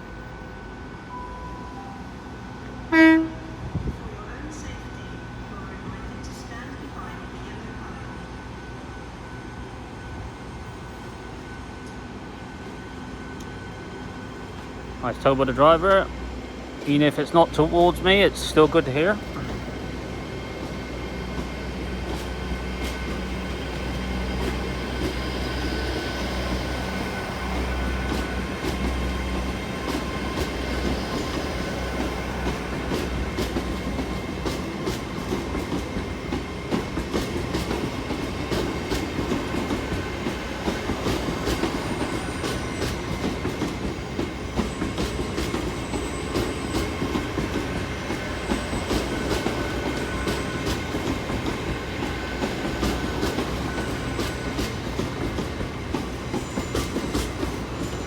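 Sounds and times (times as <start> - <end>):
train diesel engine hum: 0.0 - 58.0
train wheels clicking over rail joints: 16.8 - 58.0.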